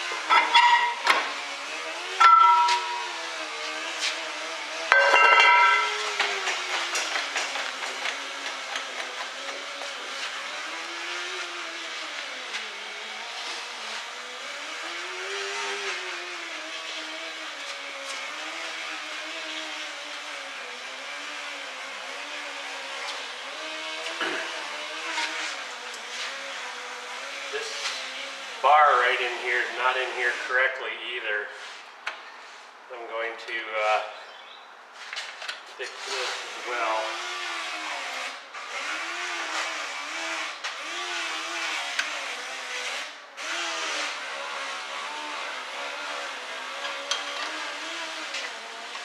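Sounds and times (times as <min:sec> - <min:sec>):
continuous hum: 0:00.0 - 0:18.5
metallic clang: 0:00.3 - 0:01.2, 0:02.2 - 0:03.1, 0:04.9 - 0:06.2.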